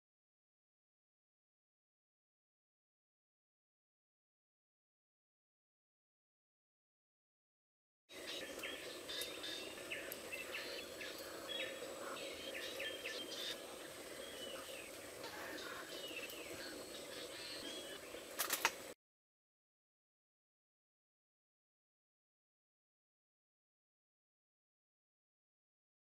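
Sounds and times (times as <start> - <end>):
forest birds chirping and whistling: 8.1 - 18.9.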